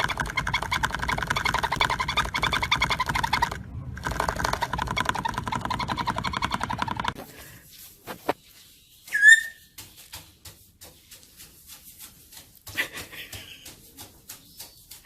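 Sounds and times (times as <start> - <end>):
parrot raspy call: 9.1 - 9.6
parrot whistle: 9.1 - 9.6.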